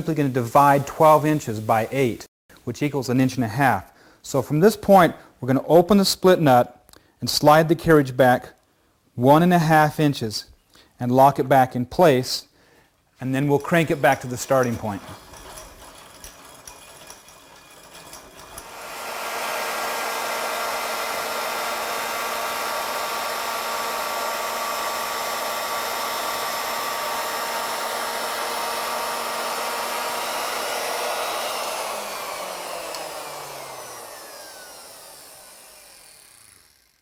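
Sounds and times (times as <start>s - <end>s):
router high whine: 18.6s - 37.0s.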